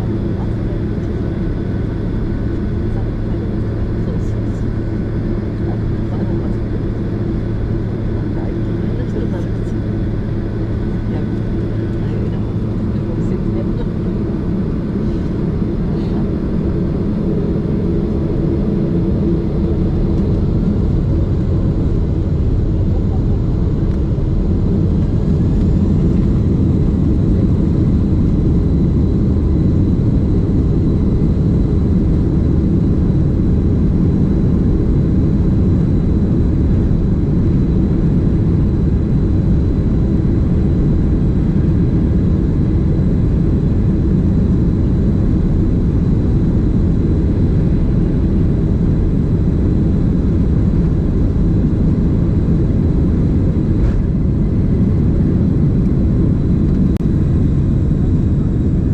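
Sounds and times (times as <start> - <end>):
jet engine cabin rumble: 0.0 - 58.9.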